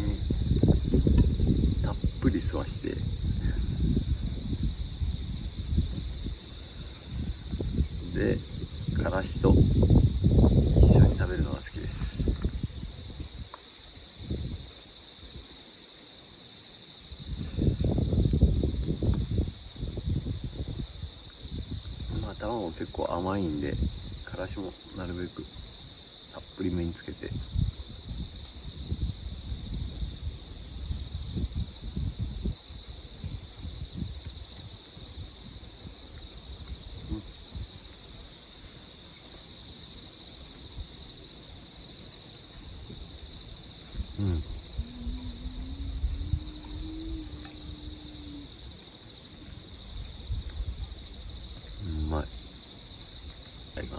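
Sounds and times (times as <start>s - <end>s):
faint low bumps: 0.0s - 13.4s
crickets trilling: 0.0s - 53.9s.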